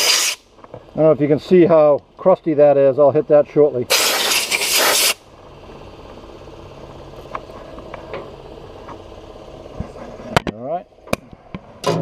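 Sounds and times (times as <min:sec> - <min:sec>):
sandblast gun hissing: 0:00.0 - 0:00.4, 0:03.9 - 0:05.2
low machine hum: 0:00.4 - 0:03.9, 0:05.2 - 0:12.0.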